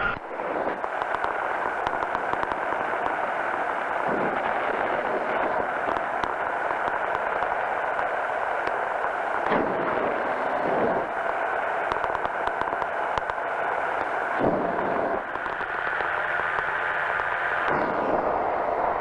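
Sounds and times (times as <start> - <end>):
engine and propeller drone: 0.0 - 19.0.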